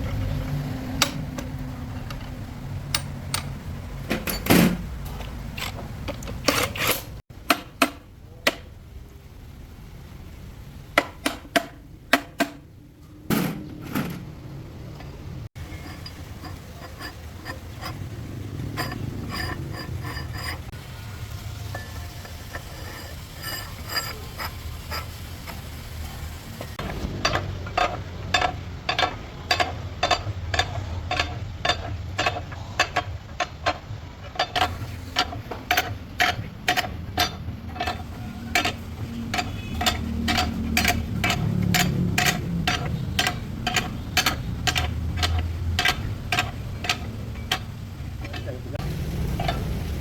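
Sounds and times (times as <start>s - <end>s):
sharp metallic clicks: 26.8s - 50.0s.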